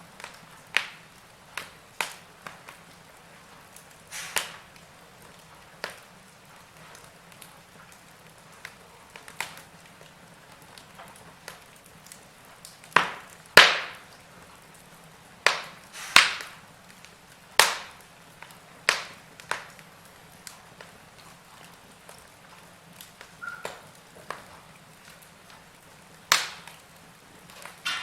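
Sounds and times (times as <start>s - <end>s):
faint steady hiss: 0.0s - 28.0s
wood fire crackling: 0.0s - 28.0s.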